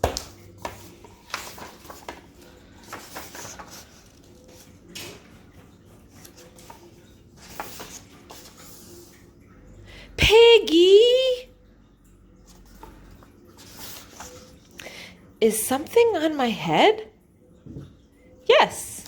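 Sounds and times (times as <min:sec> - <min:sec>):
book pages turning: 0:00.0 - 0:09.2, 0:12.5 - 0:14.8.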